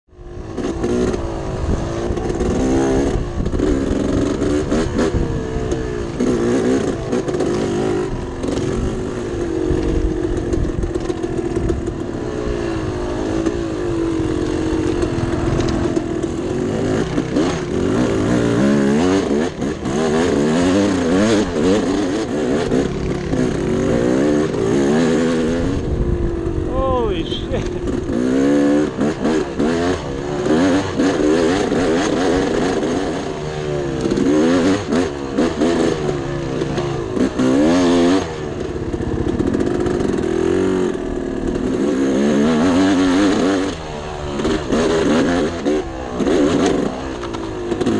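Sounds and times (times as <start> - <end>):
dirt bike engine revving: 0.2 - 47.9.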